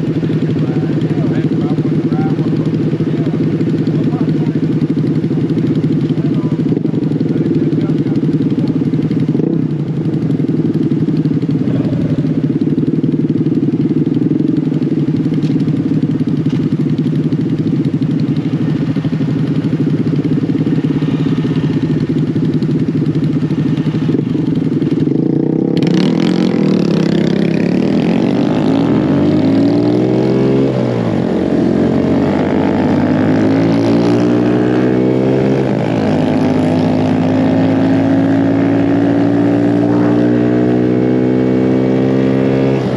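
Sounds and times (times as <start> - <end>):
mini bike engines revving: 0.0 - 42.9.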